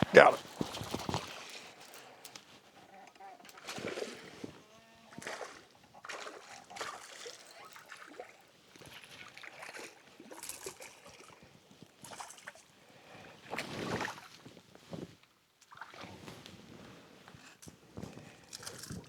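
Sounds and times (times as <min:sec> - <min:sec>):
water sloshing and trickling: 0:00.2 - 0:12.7, 0:13.4 - 0:14.6, 0:15.6 - 0:16.6.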